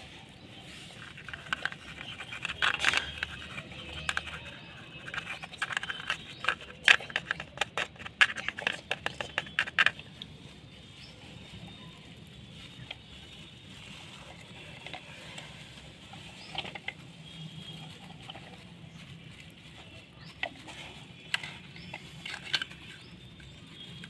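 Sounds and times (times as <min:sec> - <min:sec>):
toys clicking and knocking: 0:01.0 - 0:10.3, 0:14.4 - 0:18.7, 0:19.8 - 0:24.0.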